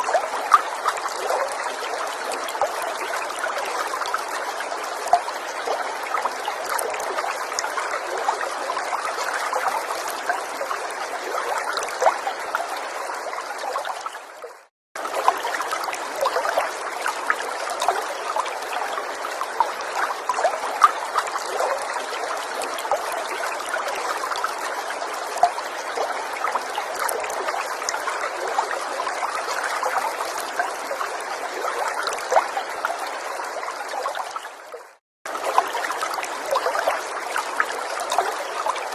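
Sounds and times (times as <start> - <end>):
stream trickling and babbling: 0.0 - 38.9
water splashes and drips: 0.0 - 38.9.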